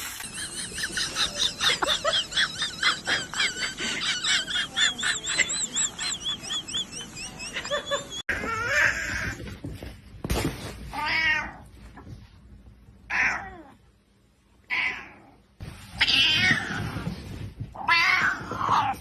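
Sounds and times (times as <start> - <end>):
cat meowing: 16.0 - 16.9.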